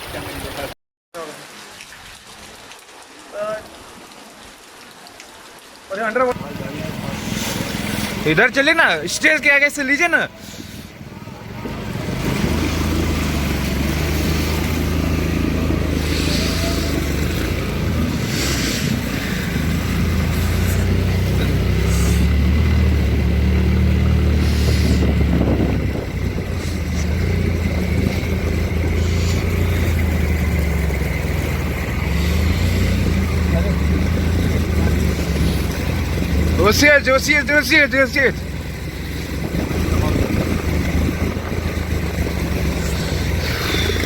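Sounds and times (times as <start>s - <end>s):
engine droning: 6.4s - 44.0s
short hissing noises: 18.2s - 21.0s, 24.4s - 25.1s.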